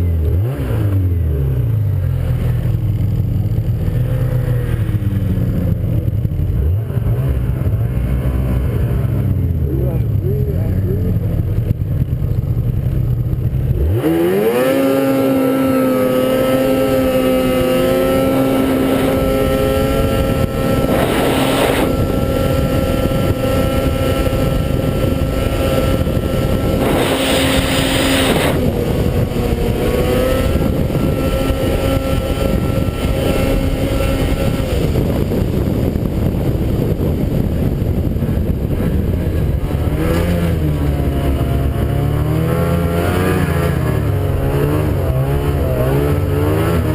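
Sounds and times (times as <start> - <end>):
snowmobile engine revving: 0.0 - 46.9
rushing noise bursts: 15.7 - 46.4.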